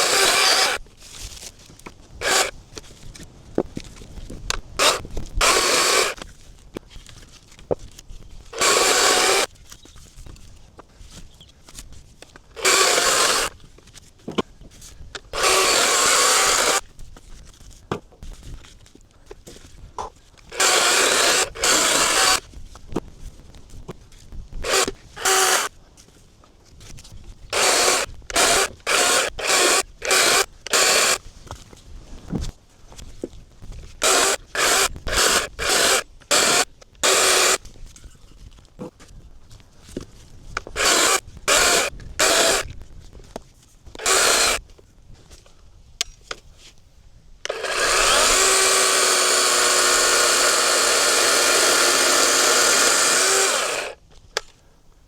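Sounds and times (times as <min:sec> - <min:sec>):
chainsaw cutting logs: 0:00.0 - 0:00.9, 0:02.2 - 0:02.6, 0:04.5 - 0:06.2, 0:08.5 - 0:09.6, 0:12.5 - 0:13.6, 0:15.2 - 0:16.9, 0:20.0 - 0:22.5, 0:24.6 - 0:25.7, 0:27.5 - 0:31.2, 0:33.9 - 0:37.7, 0:40.6 - 0:42.8, 0:43.9 - 0:44.6, 0:47.4 - 0:54.5
wood scraping: 0:47.5 - 0:54.0.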